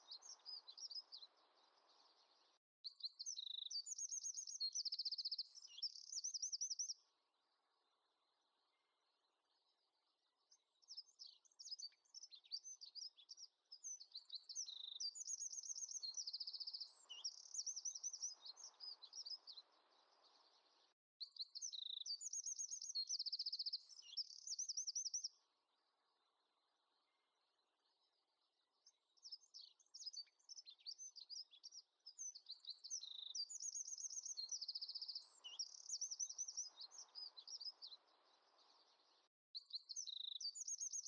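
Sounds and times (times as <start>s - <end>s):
songbird twittering: 0.0s - 7.0s, 10.8s - 25.4s, 28.8s - 41.0s.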